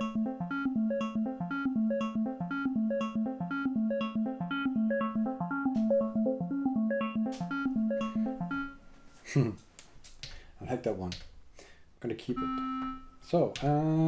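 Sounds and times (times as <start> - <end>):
synthesizer plucked sequence: 0.0 - 9.1.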